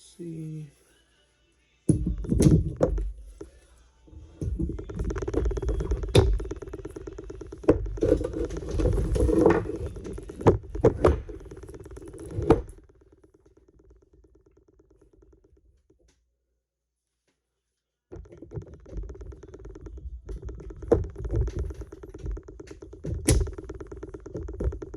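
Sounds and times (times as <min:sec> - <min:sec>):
metal scraping and rattling: 0:04.4 - 0:13.4.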